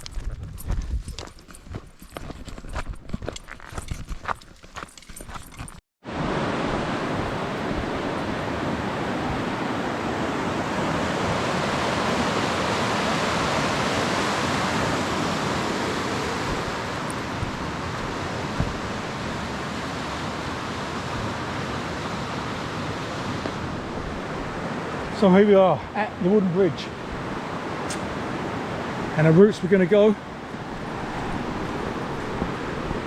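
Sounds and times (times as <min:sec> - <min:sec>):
footsteps on a trail: 0:00.0 - 0:05.8
creek rushing over rocks: 0:06.1 - 0:33.0.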